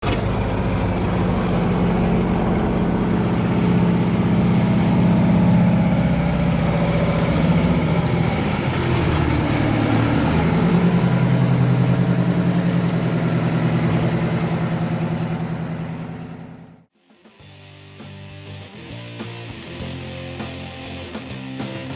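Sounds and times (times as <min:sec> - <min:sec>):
truck engine revving: 0:00.0 - 0:16.9.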